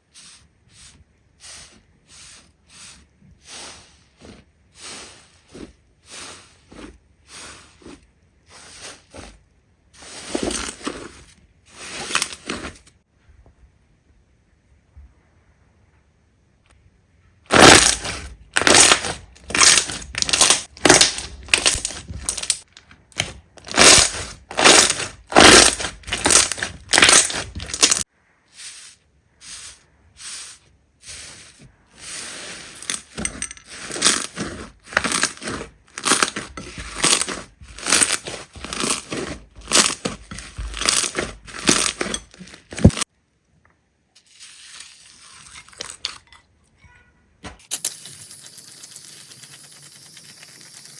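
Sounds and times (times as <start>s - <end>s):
slime squishing by hand: 17.5s - 28.0s, 33.7s - 43.1s.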